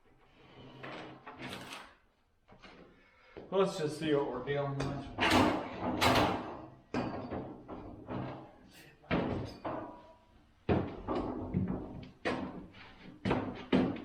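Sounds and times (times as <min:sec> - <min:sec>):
knocks and clunks on metal hardware: 0:04.8 - 0:08.4, 0:09.1 - 0:10.0, 0:10.7 - 0:12.6, 0:13.2 - 0:14.0.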